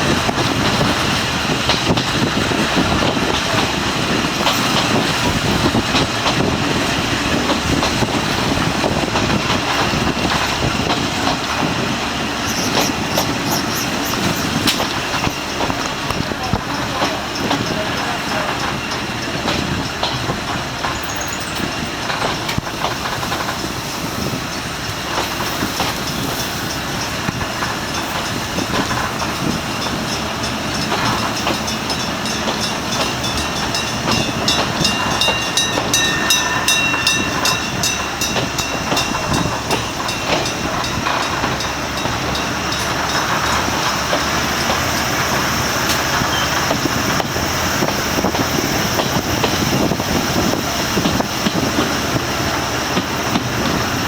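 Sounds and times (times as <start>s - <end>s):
diesel train passing: 0.0s - 54.0s
wheels clicking over rail joints: 0.0s - 54.0s.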